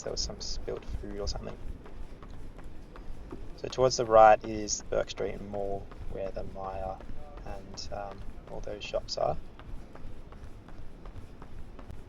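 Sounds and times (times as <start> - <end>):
low rumble of street noise: 0.0 - 12.0
running footsteps on pavement: 0.0 - 12.0.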